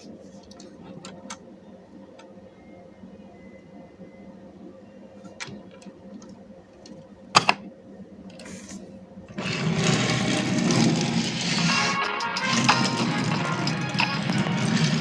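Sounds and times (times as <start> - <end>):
rapid mechanical rattle: 9.3 - 15.0
toy cars clicking: 9.4 - 15.0.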